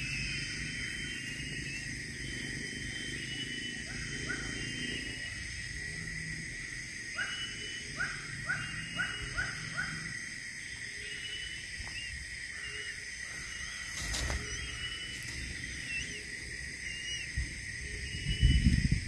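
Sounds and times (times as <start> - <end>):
bird calling rising notes: 0.0 - 5.4, 10.6 - 18.9.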